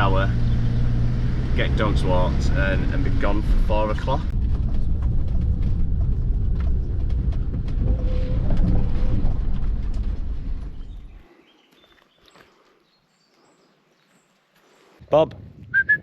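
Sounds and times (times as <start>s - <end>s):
heavy low rumble: 0.0s - 11.4s.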